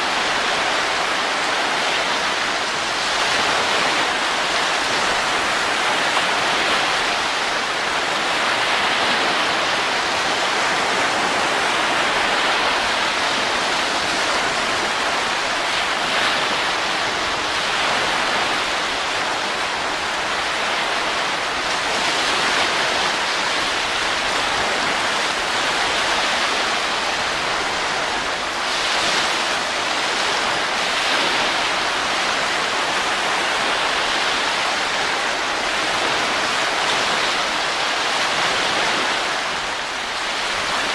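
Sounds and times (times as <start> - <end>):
rushing wind: 0.0 - 40.9.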